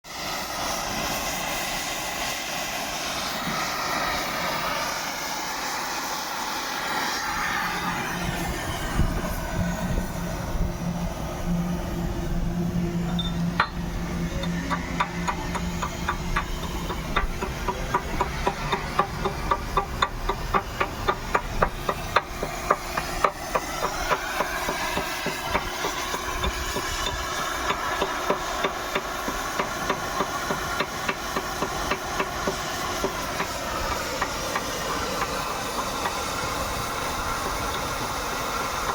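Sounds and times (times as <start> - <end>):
steady whine: 0.1 - 38.9
excavator engine running: 0.9 - 38.9
sharp metallic knocks: 13.1 - 35.4.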